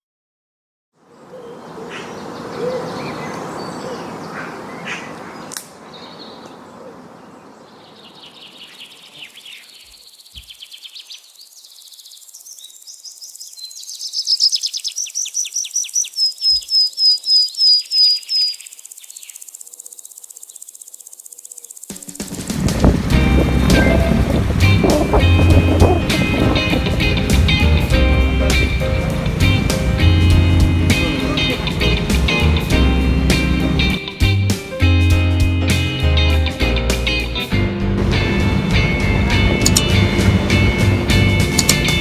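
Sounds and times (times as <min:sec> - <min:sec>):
background noise: 0:01.0 - 0:22.9
songbird singing high chirps: 0:01.2 - 0:22.0.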